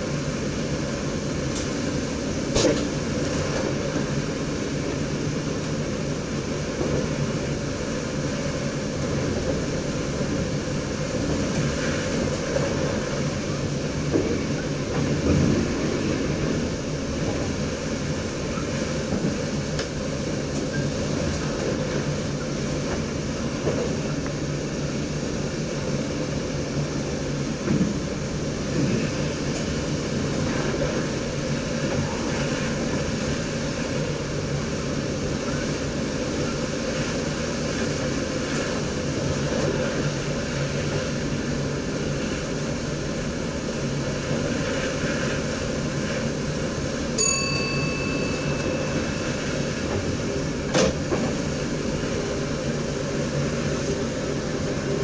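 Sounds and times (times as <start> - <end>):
train wheels rumbling on rail: 0.0 - 55.0
knocks from the track: 2.5 - 2.9, 50.7 - 51.4.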